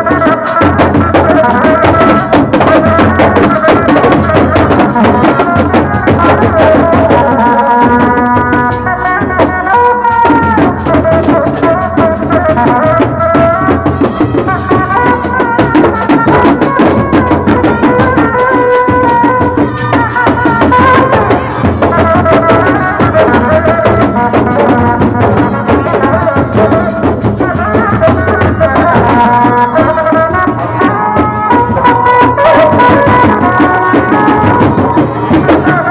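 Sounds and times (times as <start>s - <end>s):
fast hand drumming: 0.0s - 35.9s.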